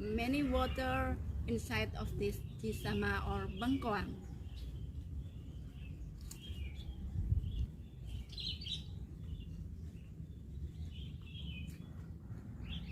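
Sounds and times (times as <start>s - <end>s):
low outdoor rumble: 0.0s - 12.9s
small birds chirping: 0.0s - 12.9s.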